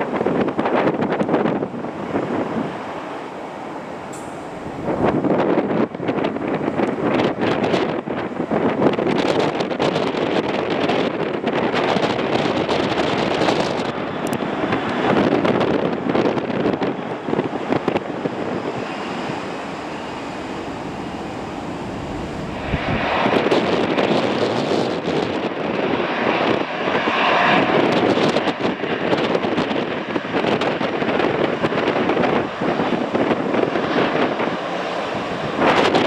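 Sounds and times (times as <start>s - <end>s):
jet engines roaring: 0.0s - 36.0s
wind buffeting microphone: 0.0s - 36.0s
faint whine: 18.8s - 23.2s.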